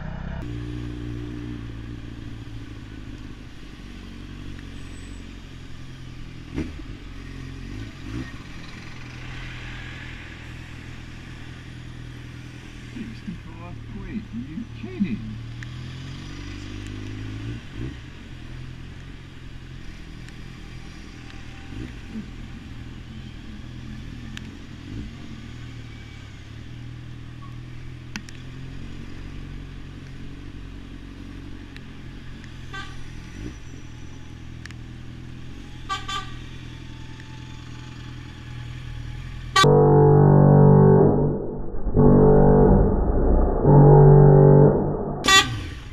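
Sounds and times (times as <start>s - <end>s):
loud music: 39.6s - 45.5s
short beeps: 39.6s - 45.6s.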